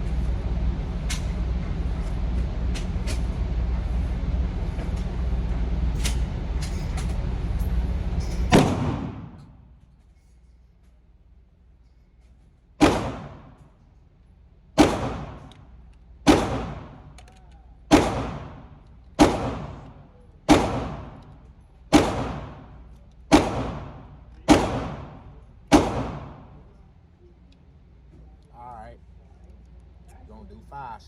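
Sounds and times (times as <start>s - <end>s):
pistol shots: 8.5s - 9.5s, 12.8s - 13.6s, 14.8s - 17.3s, 17.9s - 26.7s.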